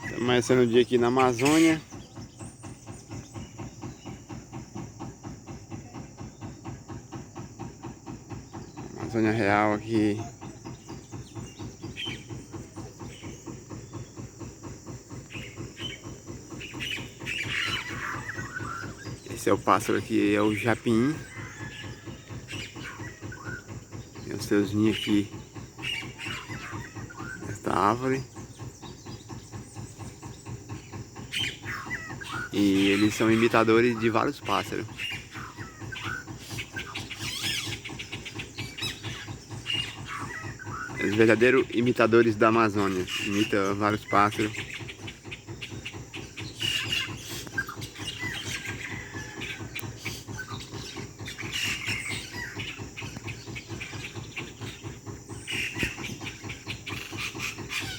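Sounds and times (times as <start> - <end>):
short high bird calls: 0.0 - 4.2, 15.2 - 29.2, 31.2 - 45.0
constant high whine: 0.0 - 57.9.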